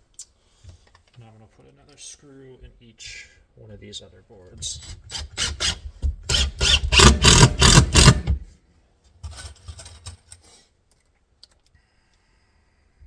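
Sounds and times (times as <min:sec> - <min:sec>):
power drill driving a screw: 0:04.8 - 0:08.4.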